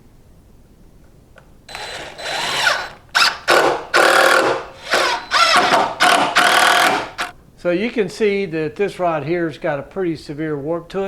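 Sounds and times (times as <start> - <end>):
power drill whining: 1.7 - 7.3.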